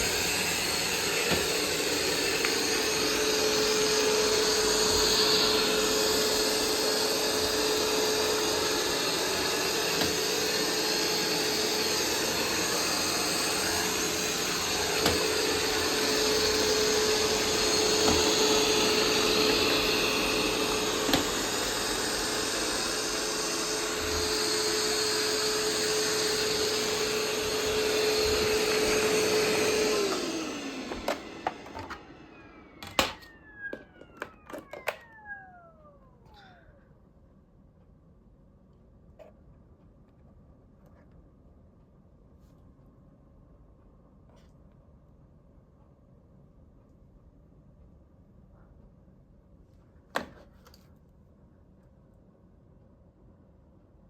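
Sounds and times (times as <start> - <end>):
robot vacuum whirring: 0.0 - 36.9.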